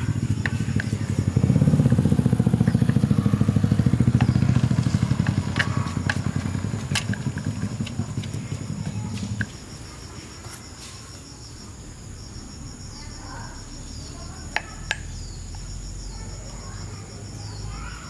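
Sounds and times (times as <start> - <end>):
small motorcycle engine running: 0.0 - 10.6, 12.3 - 18.0.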